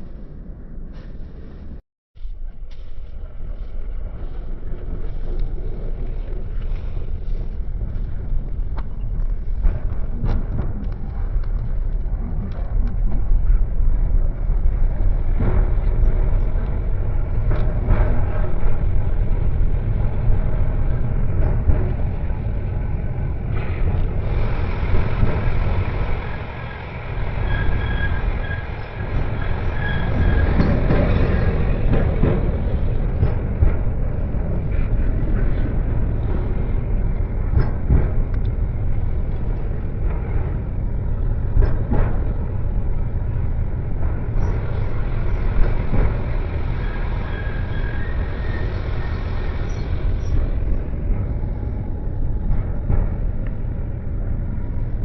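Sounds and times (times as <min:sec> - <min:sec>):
tram rumbling on rails: 0:00.0 - 0:55.0
high squeal of wheels: 0:25.8 - 0:32.0, 0:44.3 - 0:50.8.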